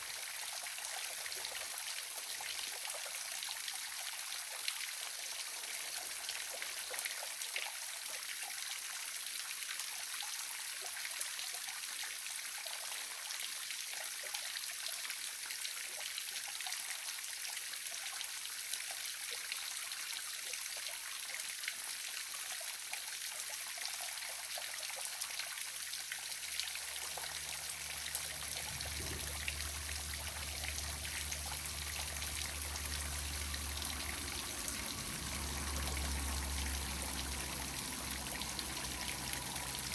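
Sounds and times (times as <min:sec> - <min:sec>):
waterfall splashing: 0:26.7 - 0:39.9.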